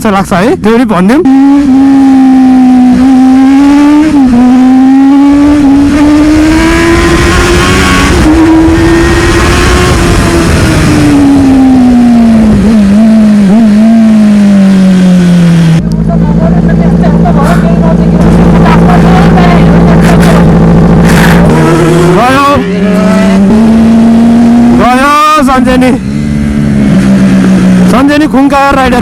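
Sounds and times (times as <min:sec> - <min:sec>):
motorcycle engine revving: 0:00.0 - 0:29.0
wind noise on microphone: 0:05.2 - 0:14.5.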